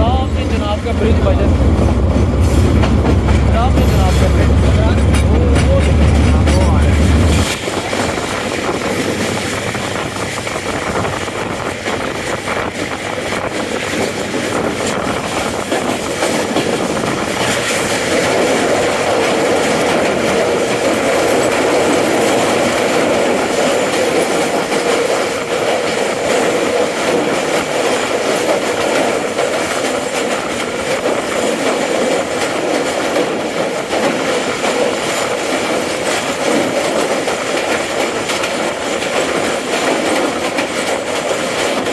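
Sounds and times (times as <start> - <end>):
humming ring of rails: 0.0 - 10.4
train wheels rushing on rails: 0.0 - 41.9.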